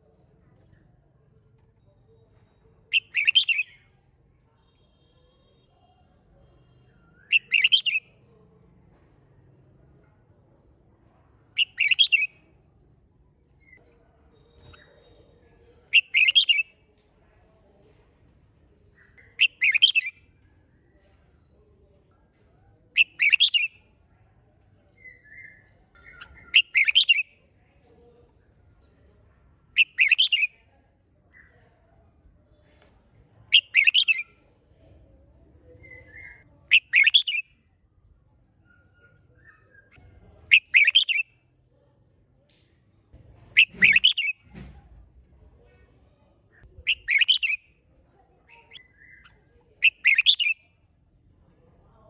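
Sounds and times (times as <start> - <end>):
bird singing bright phrases: 1.8 - 6.0, 6.7 - 8.2, 11.2 - 12.7, 13.4 - 17.9, 18.6 - 22.1, 23.0 - 24.3, 24.9 - 27.6, 29.7 - 31.9, 33.5 - 34.4, 35.6 - 41.4, 42.5 - 45.0, 45.6 - 50.9
soft short bird notes: 43.4 - 44.6.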